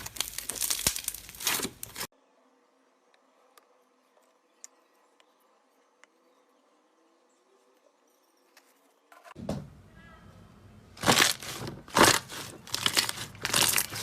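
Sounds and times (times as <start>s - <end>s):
slime squishing: 0.0s - 2.1s, 11.0s - 14.0s.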